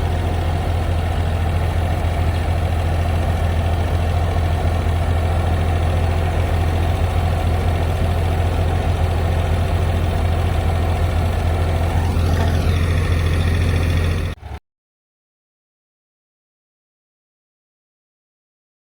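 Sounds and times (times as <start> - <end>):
tractor engine idling: 0.0 - 14.6
rising and falling whine: 6.0 - 14.6.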